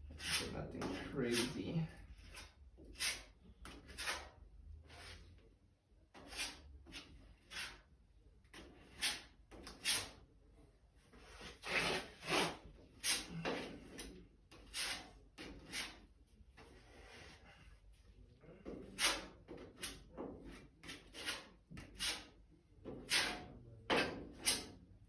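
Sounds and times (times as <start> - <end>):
spreader scraping body filler: 0.1 - 5.3.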